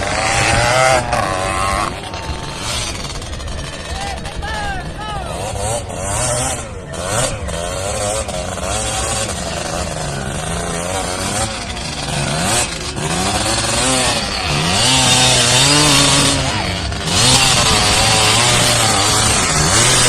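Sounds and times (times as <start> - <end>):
off-road engines revving: 0.0 - 20.0.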